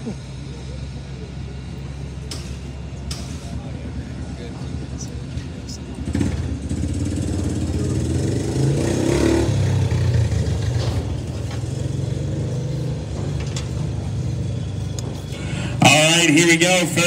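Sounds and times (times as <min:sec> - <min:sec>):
car engines running: 0:00.0 - 0:17.0
engine revving: 0:05.4 - 0:17.0.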